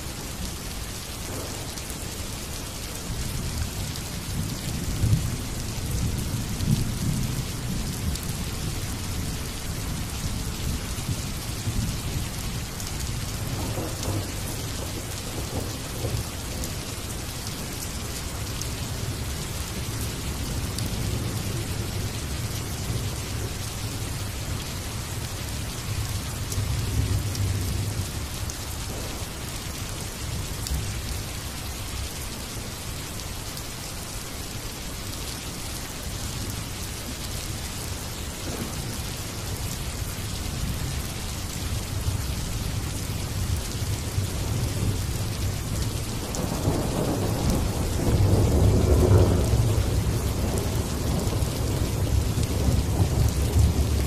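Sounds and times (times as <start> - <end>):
steady rain falling: 0.0 - 54.0
thunder rumbling: 13.2 - 16.9, 26.4 - 29.5, 46.2 - 54.0.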